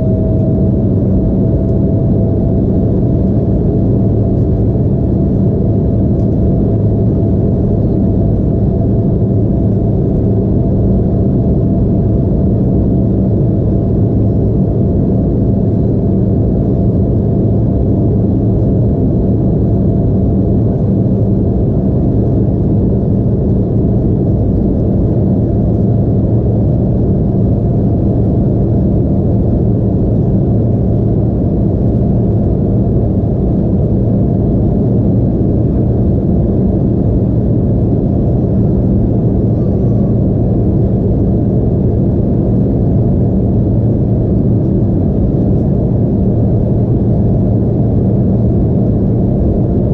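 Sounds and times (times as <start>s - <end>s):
airliner cabin engine hum: 0.0s - 49.9s.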